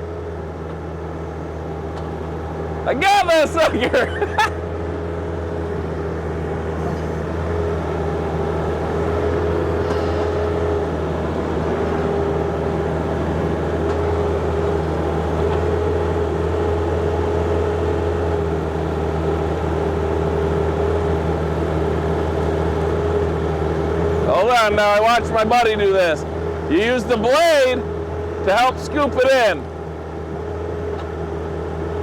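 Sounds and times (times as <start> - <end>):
excavator diesel engine running: 0.0 - 32.0
steady whine: 0.6 - 16.5.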